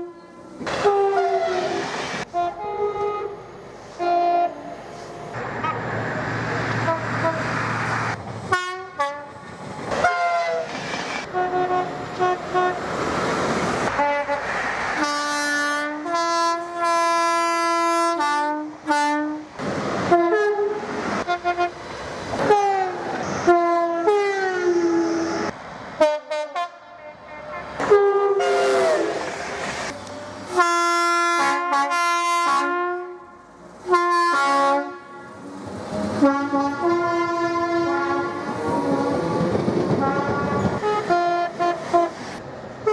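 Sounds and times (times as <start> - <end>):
train horn blasts: 0.0 - 4.8, 6.8 - 7.5, 8.5 - 9.4, 10.0 - 10.7, 11.3 - 12.8, 13.9 - 19.5, 20.1 - 21.8, 22.4 - 25.1, 26.0 - 29.3, 30.5 - 42.2
train running: 0.0 - 42.9.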